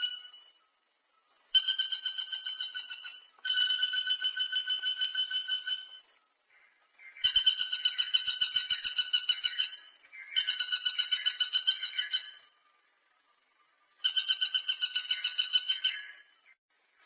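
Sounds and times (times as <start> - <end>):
woodpecker calling: 0.0 - 16.6.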